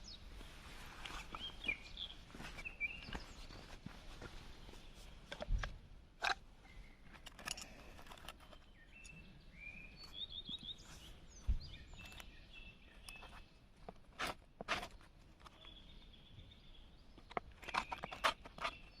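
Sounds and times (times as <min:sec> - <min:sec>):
small birds chirping: 0:00.0 - 0:05.8, 0:06.5 - 0:19.0
clicks and rustles: 0:05.1 - 0:09.2, 0:10.0 - 0:15.8, 0:17.1 - 0:19.0.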